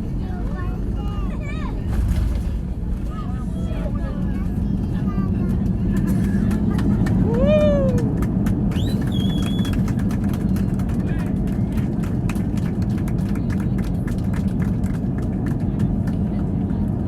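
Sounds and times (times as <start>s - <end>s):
aircraft cabin rumble: 0.0s - 17.0s
passengers clapping: 2.9s - 17.0s
whistle: 8.7s - 9.8s.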